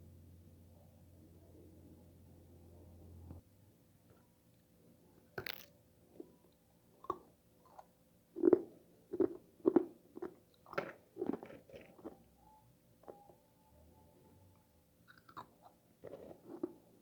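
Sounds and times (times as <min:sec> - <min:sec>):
crunching bite of frost: 0:05.4 - 0:05.8
crunchy chewing: 0:05.4 - 0:06.3, 0:07.0 - 0:12.3, 0:15.1 - 0:17.0.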